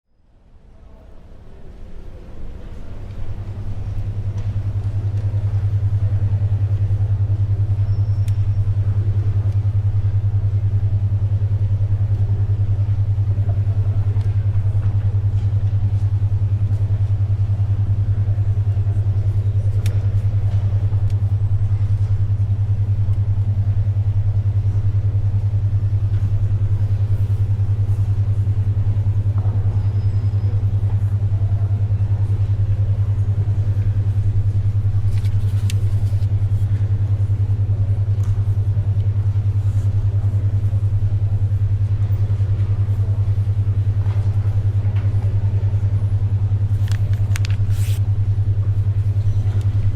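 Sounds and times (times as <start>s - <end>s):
pulsing electronic hum: 2.0s - 49.9s
paper and pencil sounds: 35.0s - 36.7s, 46.8s - 48.0s.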